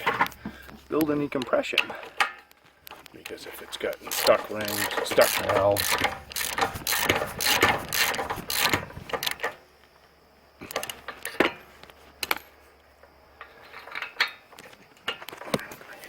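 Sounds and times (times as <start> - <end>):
ratchet wrench clicking: 4.0 - 9.5
tools knocking on engine: 4.1 - 8.9.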